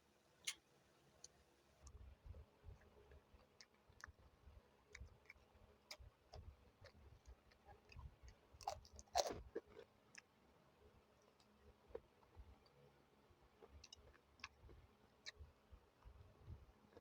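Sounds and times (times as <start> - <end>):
person chewing: 2.7 - 4.2, 4.9 - 10.3
crunchy bite: 8.6 - 9.9.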